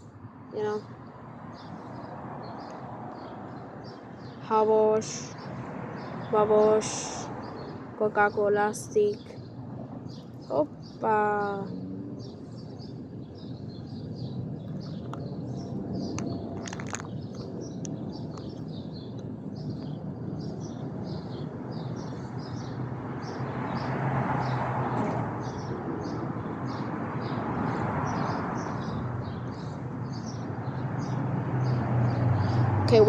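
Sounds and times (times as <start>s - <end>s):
steady low hum: 0.0s - 23.6s
small birds chirping: 0.0s - 33.0s.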